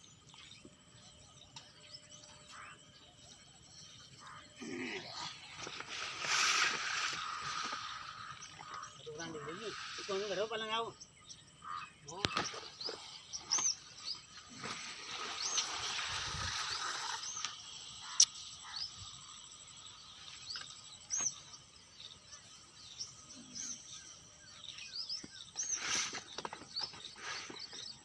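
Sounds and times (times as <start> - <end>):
small birds chirping: 0.0 - 28.0
steady hiss: 3.9 - 11.0, 12.4 - 24.2.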